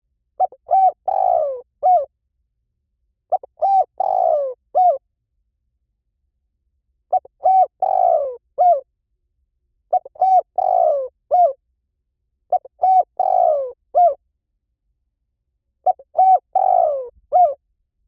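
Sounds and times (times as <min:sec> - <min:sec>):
dove cooing: 0:00.4 - 0:02.1, 0:03.3 - 0:05.0, 0:07.1 - 0:08.8, 0:09.9 - 0:11.6, 0:12.5 - 0:14.2, 0:15.8 - 0:17.6.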